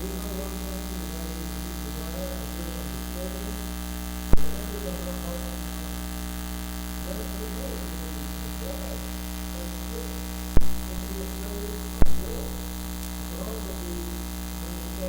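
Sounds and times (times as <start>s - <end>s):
faint muffled voice: 0.0s - 3.8s, 4.4s - 15.0s
electrical mains hum and buzz: 0.0s - 15.0s.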